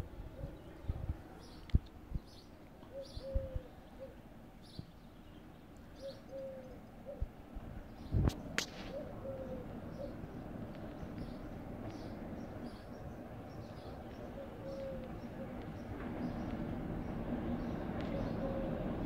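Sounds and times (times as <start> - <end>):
small birds chirping faintly: 0.0 - 19.0
dove cooing: 2.9 - 4.2, 6.0 - 7.3, 8.7 - 10.2, 14.2 - 15.8, 18.1 - 19.0.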